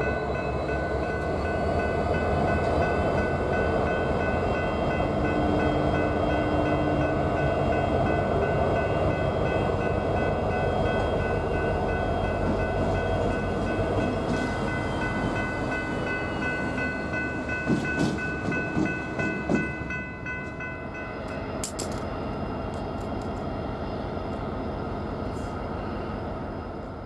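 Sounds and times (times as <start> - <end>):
freight train rumbling: 0.0 - 27.0.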